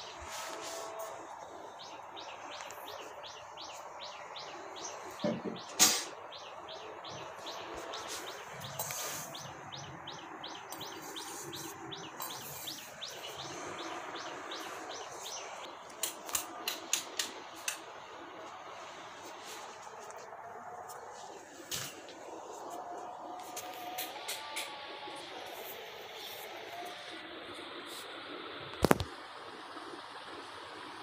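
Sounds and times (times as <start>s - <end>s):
small bird chirping: 1.8s - 15.7s.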